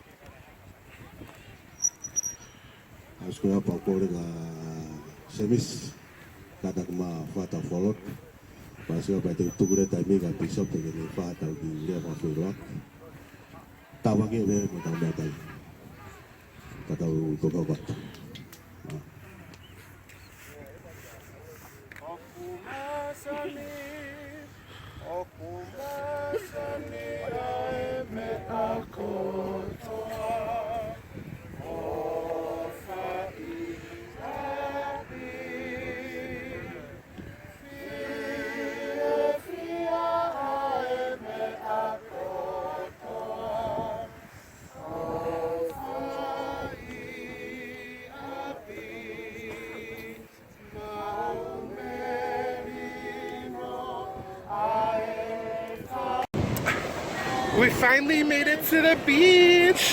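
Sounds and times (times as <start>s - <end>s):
choir singing held notes: 22.4s - 59.9s.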